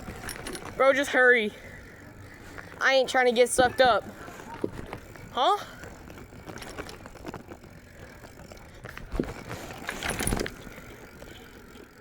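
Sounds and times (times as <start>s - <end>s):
bicycle rattling knocks: 0.0s - 1.1s, 4.5s - 12.0s
bicycle riding rush: 0.0s - 12.0s.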